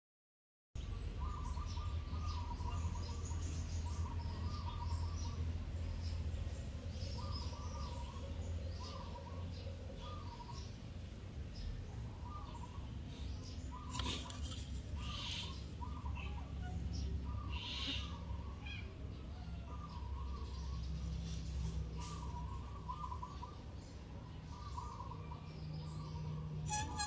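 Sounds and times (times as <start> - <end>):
bird warbling calls: 12.1 - 23.8, 24.5 - 27.0
high bird chirps: 26.5 - 27.0.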